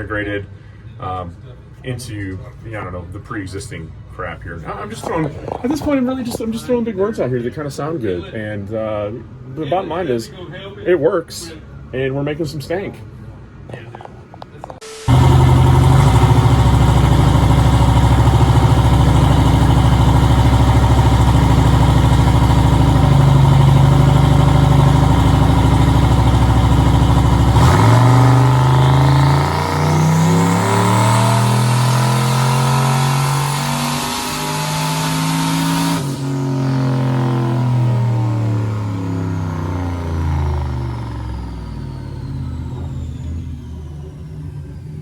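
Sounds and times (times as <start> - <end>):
high whine: 14.7 - 45.0
engine running hard: 14.8 - 45.0.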